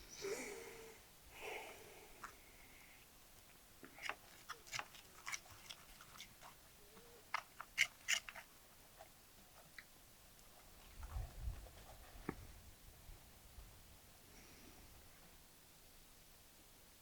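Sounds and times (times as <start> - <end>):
crunchy fried food being chewed: 3.4 - 9.9.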